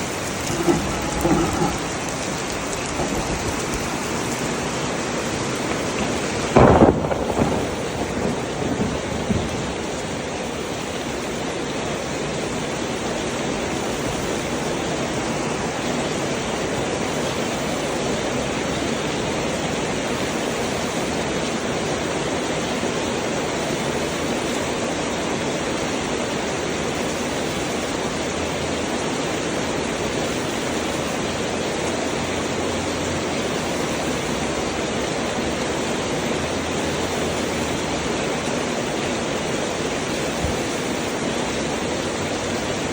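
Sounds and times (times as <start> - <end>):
thunderclap: 0.0 - 10.4
heavy rain falling: 0.0 - 42.9.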